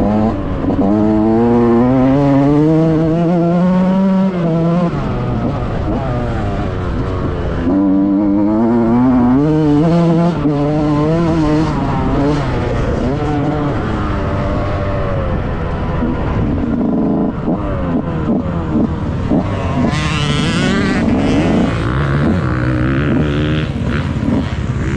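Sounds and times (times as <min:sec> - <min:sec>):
two-stroke engine revving: 0:16.0 - 0:24.9.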